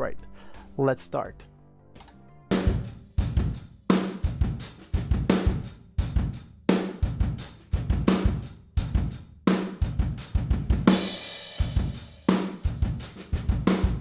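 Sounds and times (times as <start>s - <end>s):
kick drum: 7.1s - 9.2s, 9.9s - 10.9s.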